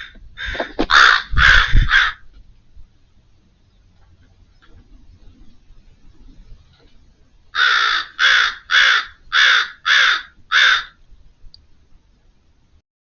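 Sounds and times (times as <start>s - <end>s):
crow cawing: 0.0s - 2.2s, 7.6s - 11.0s.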